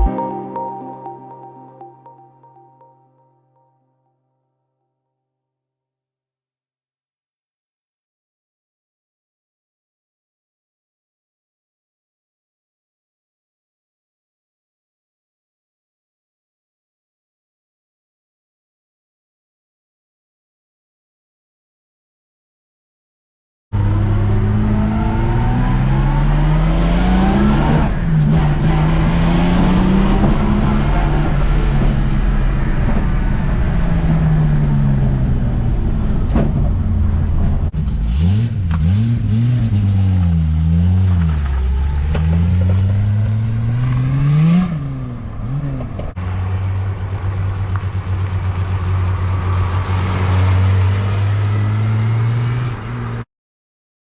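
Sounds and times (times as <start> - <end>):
race car engine pulling under load: 23.8 - 53.2.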